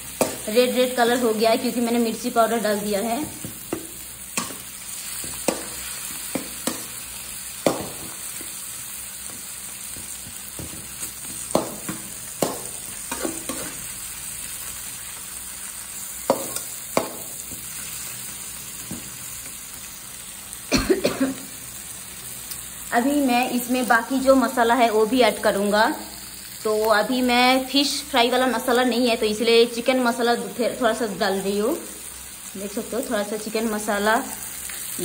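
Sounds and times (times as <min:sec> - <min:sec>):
masala sizzling in a metal pan: 0:00.0 - 0:35.0
metal spoon scraping a pan: 0:10.8 - 0:13.9.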